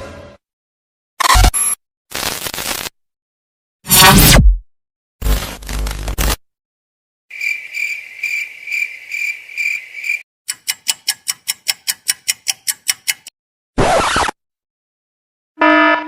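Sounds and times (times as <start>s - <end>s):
high cricket-like chirping: 7.3s - 10.2s.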